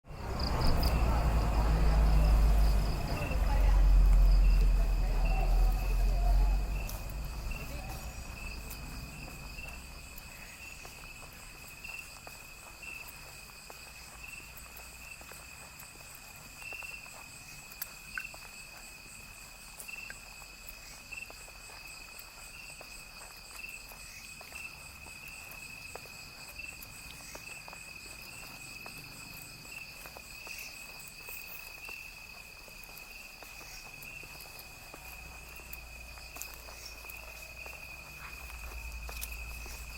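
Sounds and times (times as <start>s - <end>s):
faint ticks: 17.7s - 18.5s.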